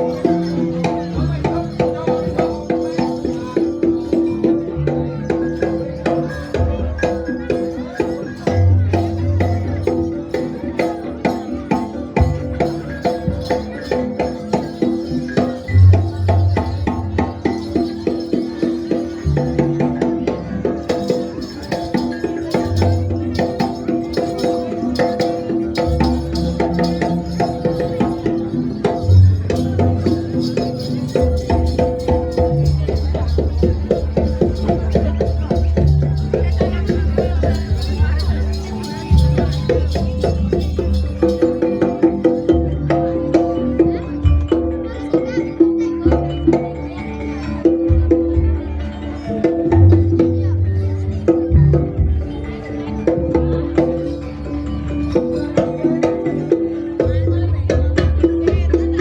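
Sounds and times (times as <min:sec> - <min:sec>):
gamelan percussion struck: 0:00.0 - 0:48.5
metallophone notes: 0:00.0 - 0:59.0
drum beating: 0:20.8 - 0:42.6.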